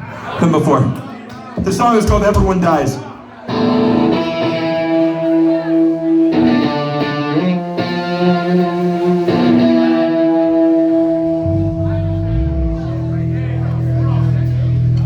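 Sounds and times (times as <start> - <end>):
guitar playing slow ringing chords: 3.5 - 15.0.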